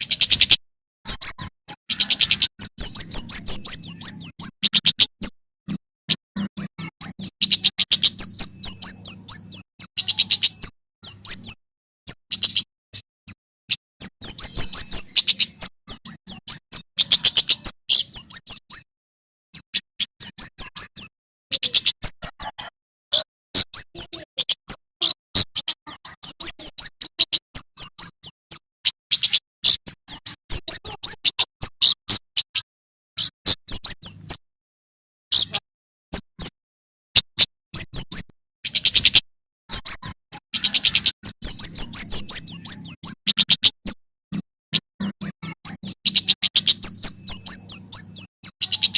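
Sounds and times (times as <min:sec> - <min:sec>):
bird chirping and trilling: 0:00.0 - 0:18.9, 0:19.5 - 0:34.5, 0:35.3 - 0:36.6, 0:37.2 - 0:48.9.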